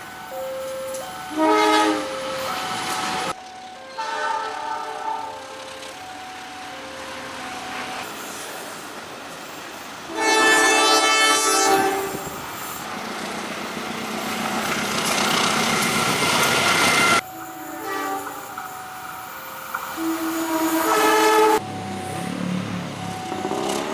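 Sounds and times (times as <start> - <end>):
passing train rumble: 0.0 - 23.9
train horn: 1.2 - 2.7, 3.8 - 5.8, 10.1 - 12.4, 17.0 - 18.6, 19.9 - 21.6.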